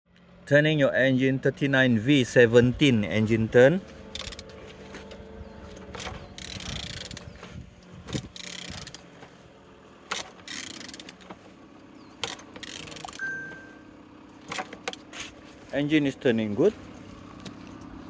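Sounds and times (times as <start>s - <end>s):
ratchet wrench clicks and knocks: 4.1s - 4.5s, 6.0s - 7.3s, 8.2s - 9.1s, 10.1s - 11.4s, 12.2s - 13.3s.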